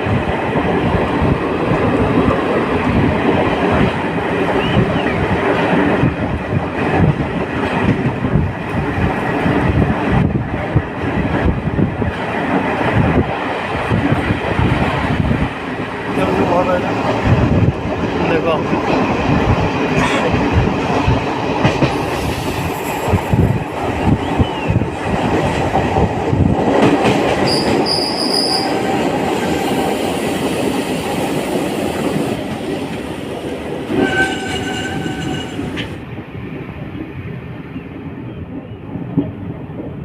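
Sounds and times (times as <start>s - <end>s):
high wheel squeal: 27.5s - 28.8s, 33.9s - 35.7s.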